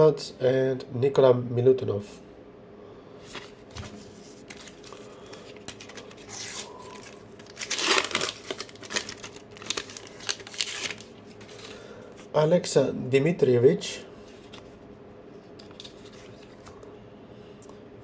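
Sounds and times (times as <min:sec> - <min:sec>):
paper wrapper tearing and crinkling: 0:04.3 - 0:11.7.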